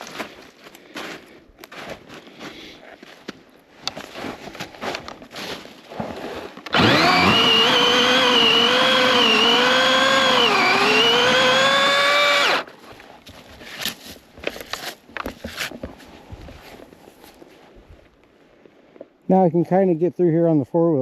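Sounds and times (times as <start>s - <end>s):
footsteps: 0.0s - 6.5s
chainsaw high whine: 6.7s - 12.7s.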